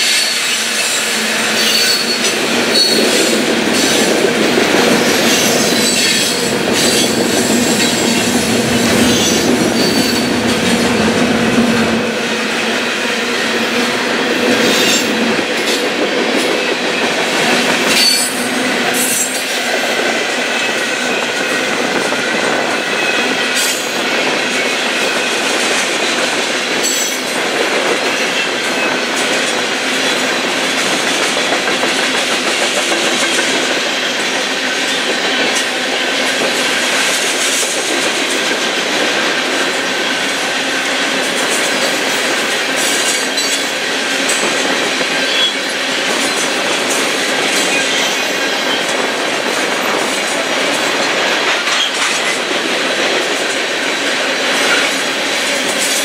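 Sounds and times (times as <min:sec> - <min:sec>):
wheels squealing: 0:00.0 - 0:04.1, 0:05.1 - 0:11.1
train wheels rumbling on rails: 0:00.0 - 0:56.0.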